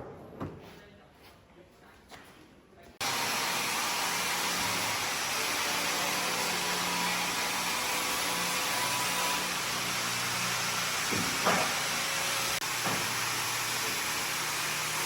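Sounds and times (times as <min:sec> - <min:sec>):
power tool running with hiss: 0:03.0 - 0:15.0.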